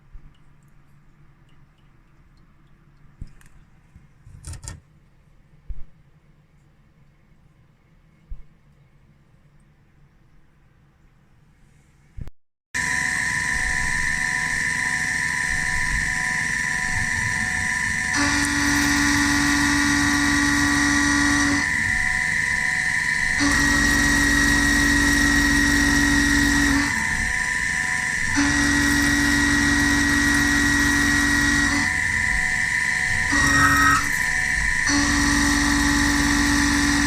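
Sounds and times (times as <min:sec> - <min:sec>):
milling machine high whine: 0:12.8 - 0:37.0.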